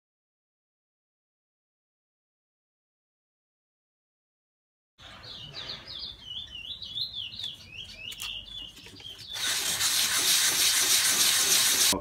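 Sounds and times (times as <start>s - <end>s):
songbird warbling chirps: 5.0s - 9.4s.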